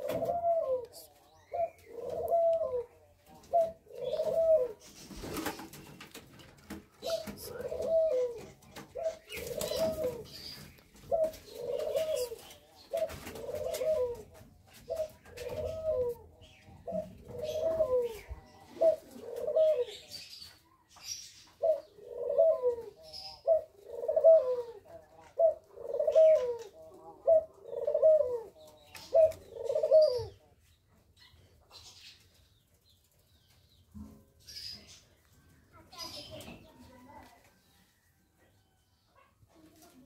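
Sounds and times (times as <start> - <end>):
pigeons cooing: 0.0 - 20.5, 21.3 - 30.5.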